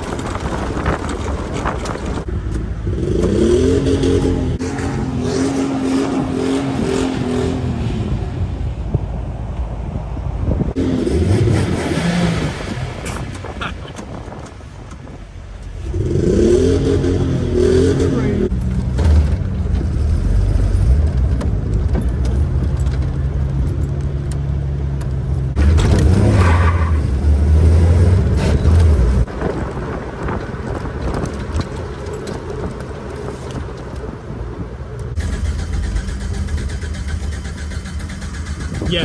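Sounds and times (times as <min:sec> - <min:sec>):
vehicle engine running: 0:27.1 - 0:39.0.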